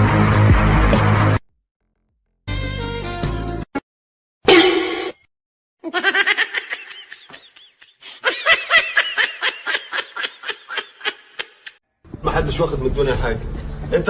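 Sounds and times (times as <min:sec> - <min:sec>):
high-pitched laughter: 0:05.8 - 0:11.8.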